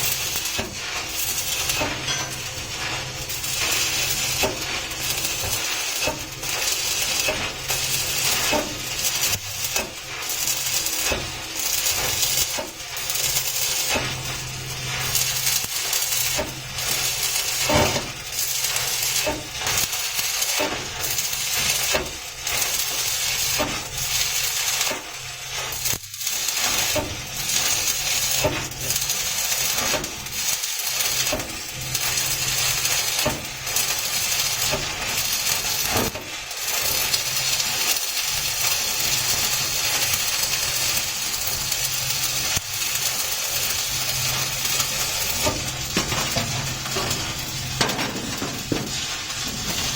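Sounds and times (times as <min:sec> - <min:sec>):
welding arc crackling: 0:00.0 - 0:49.9.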